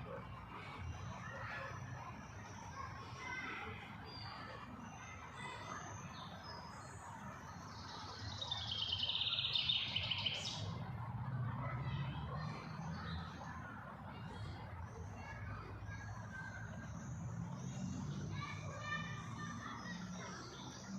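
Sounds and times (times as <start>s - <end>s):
songbirds chirping: 0.0s - 20.9s
bird singing rapid trill: 1.4s - 10.8s.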